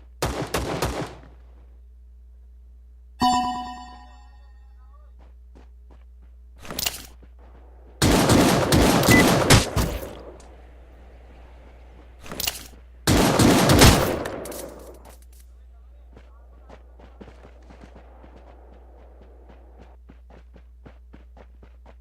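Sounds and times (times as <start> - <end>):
automatic gunfire bursts: 8.0 - 10.5, 13.1 - 15.1.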